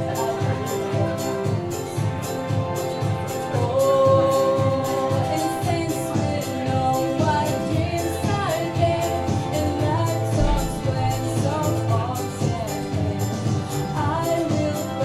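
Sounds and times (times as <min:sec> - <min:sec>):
accompanying music with steady beat: 0:00.0 - 0:15.0
woman singing country song: 0:03.5 - 0:15.0.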